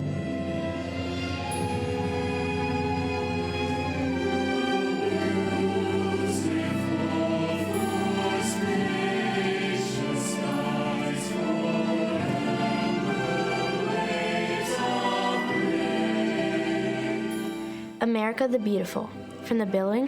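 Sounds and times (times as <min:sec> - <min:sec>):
band accompaniment: 0:00.0 - 0:08.3
choir singing long held notes: 0:00.0 - 0:18.0.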